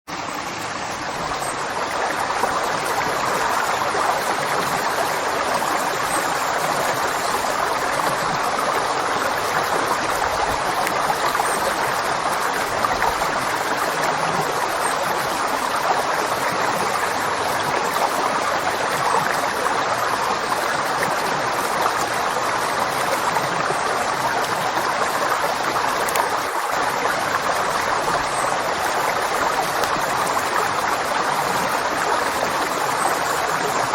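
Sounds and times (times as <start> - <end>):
river water rushing: 0.1 - 33.9.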